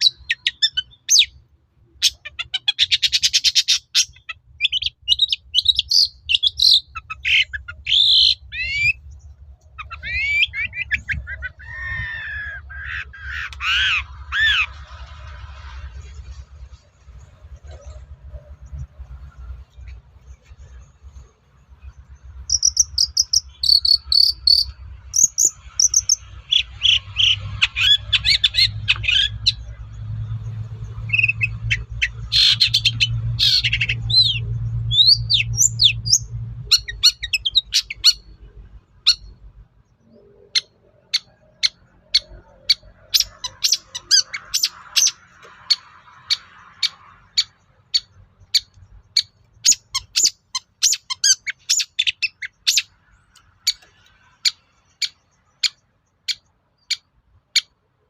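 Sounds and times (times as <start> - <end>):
bird singing: 0.0 - 14.9, 17.0 - 57.8
low hum: 4.4 - 44.1.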